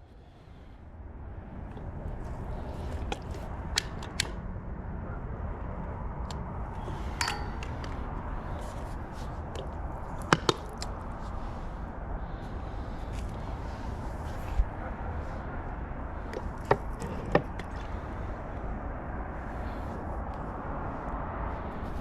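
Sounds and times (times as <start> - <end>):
low outdoor rumble: 0.0 - 22.0
metal clicks and clinks: 7.1 - 8.0.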